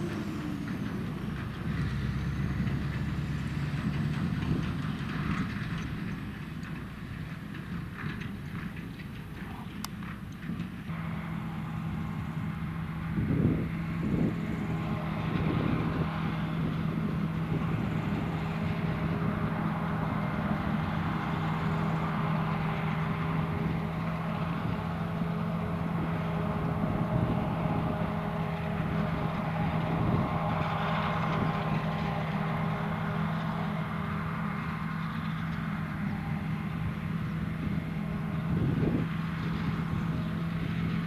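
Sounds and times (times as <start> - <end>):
diesel machinery engine drone: 0.0 - 41.0.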